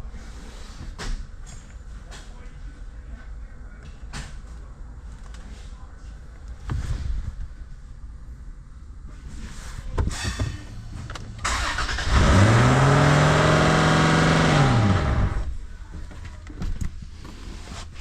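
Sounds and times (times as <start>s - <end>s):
car engine starting and running: 10.8s - 15.6s.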